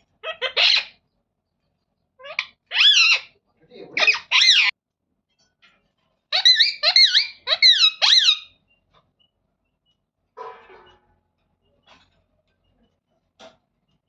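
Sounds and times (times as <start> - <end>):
parrot calling: 0.0 - 1.0, 2.2 - 4.8, 6.3 - 8.7.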